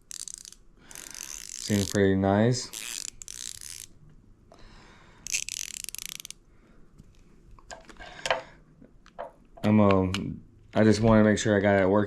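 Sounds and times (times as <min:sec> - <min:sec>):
ratchet clicking: 0:00.1 - 0:02.0, 0:05.2 - 0:06.4.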